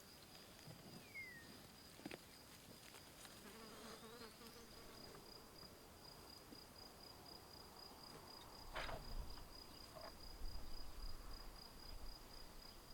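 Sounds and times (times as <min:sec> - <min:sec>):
rustle: 0:00.0 - 0:06.8.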